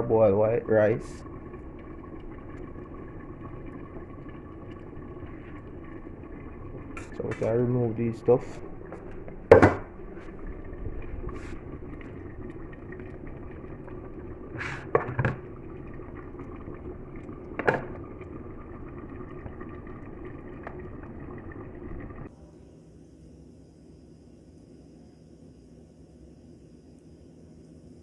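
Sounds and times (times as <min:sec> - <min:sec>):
pot of food bubbling: 0:00.0 - 0:22.3.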